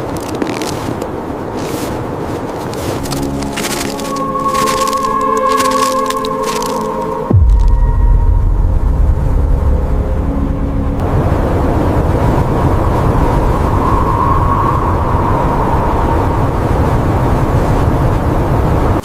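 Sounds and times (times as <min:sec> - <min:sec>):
blizzard wind roaring: 0:00.0 - 0:19.0
faint high whistle: 0:03.9 - 0:08.4, 0:13.3 - 0:16.6.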